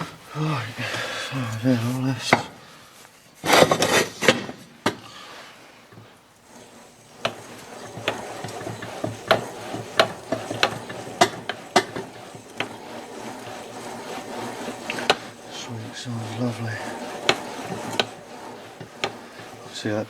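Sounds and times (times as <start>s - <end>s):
crankshaft bearings whirring rattle: 0.0s - 2.6s, 3.4s - 20.0s
connecting rod knocking: 6.4s - 20.0s.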